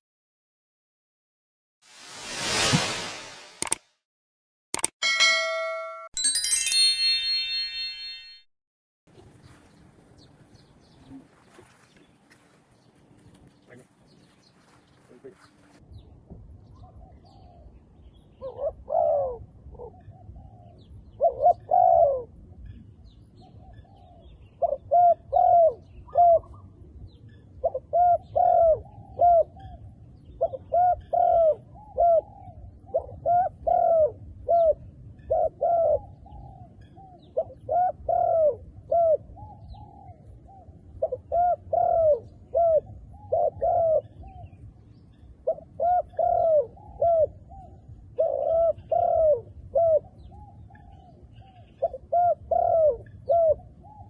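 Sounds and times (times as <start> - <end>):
doves cooing: 37.4 - 40.2, 41.0 - 44.2, 45.5 - 50.1, 51.8 - 54.0.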